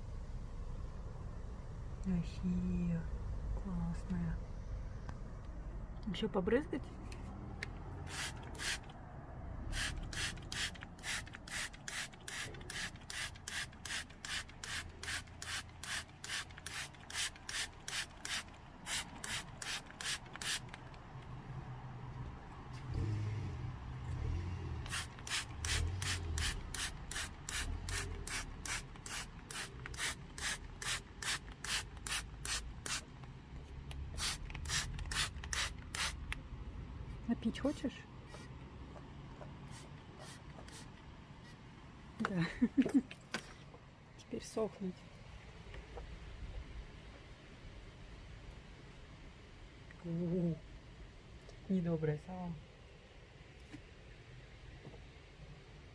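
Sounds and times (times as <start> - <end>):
spray bottle squirting mist: 8.0 - 8.9, 9.7 - 20.9, 24.8 - 33.1, 34.1 - 36.3.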